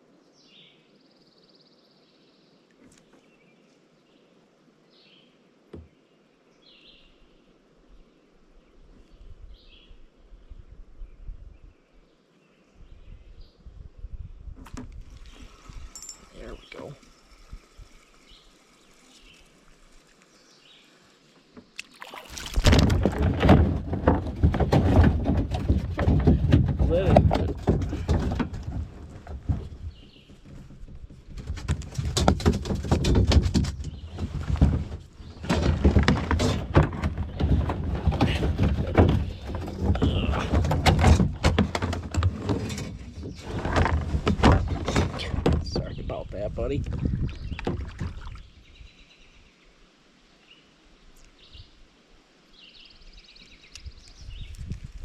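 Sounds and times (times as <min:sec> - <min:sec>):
wind rumbling on microphone: 0:08.8 - 0:12.0, 0:12.7 - 0:18.5, 0:22.4 - 0:49.5, 0:52.8 - 0:55.0
water splashing around a kayak: 0:15.0 - 0:25.1, 0:46.9 - 0:48.6
knocks and thuds against kayak: 0:21.6 - 0:46.1, 0:46.8 - 0:48.4.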